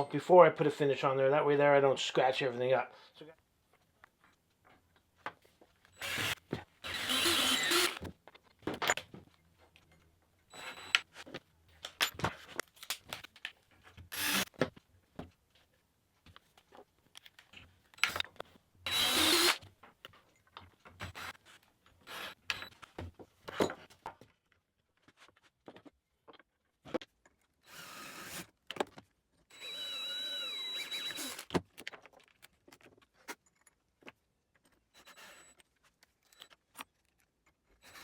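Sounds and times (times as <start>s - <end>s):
power drill boring wood: 6.0s - 8.1s, 10.5s - 11.0s, 14.1s - 14.5s, 18.9s - 19.6s, 21.0s - 21.4s, 22.0s - 22.6s, 27.7s - 28.5s, 29.5s - 31.6s, 35.0s - 35.5s
clicks and knocks handling wood: 11.1s - 18.6s, 31.5s - 34.9s.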